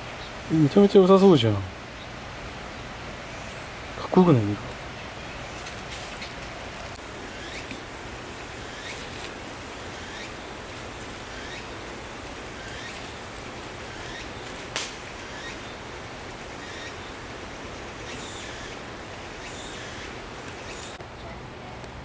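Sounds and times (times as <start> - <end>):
steady outdoor hiss: 0.0 - 22.0
sharp click: 14.4 - 15.0.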